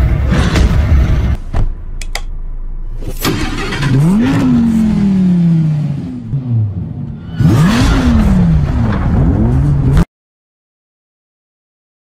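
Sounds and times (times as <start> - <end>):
sports car engine revving: 3.6 - 10.0.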